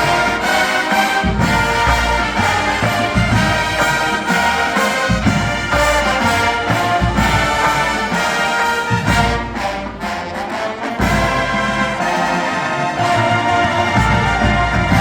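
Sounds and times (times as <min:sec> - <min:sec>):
marching band playing: 0:00.0 - 0:15.0.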